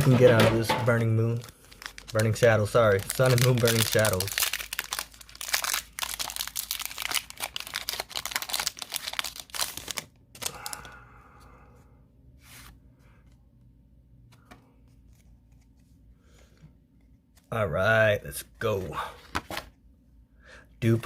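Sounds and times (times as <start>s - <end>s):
foil pack crinkling and tearing: 1.0s - 10.9s
cards clicking and rustling: 1.7s - 10.9s.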